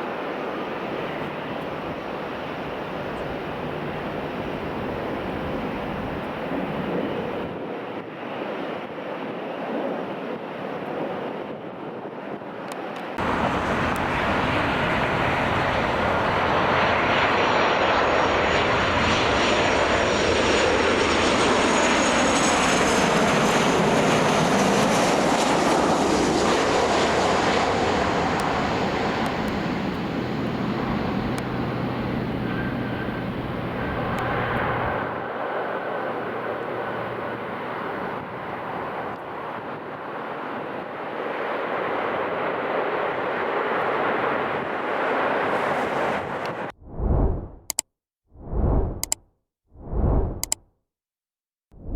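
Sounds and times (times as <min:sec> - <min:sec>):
jet airliner passing overhead: 0:00.0 - 0:47.1
high fan whine: 0:29.2 - 0:35.2.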